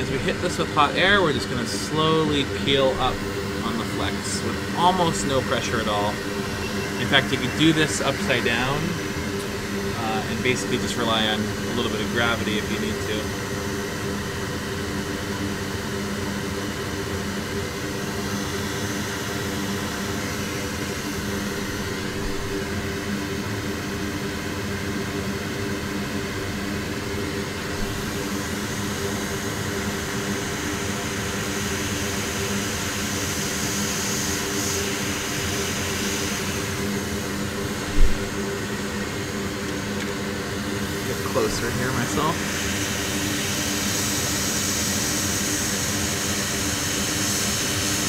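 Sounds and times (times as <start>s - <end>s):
fume extractor fan hum: 0.0s - 48.0s
hot air rework station whirring: 0.0s - 48.0s
brief thump: 37.9s - 38.3s.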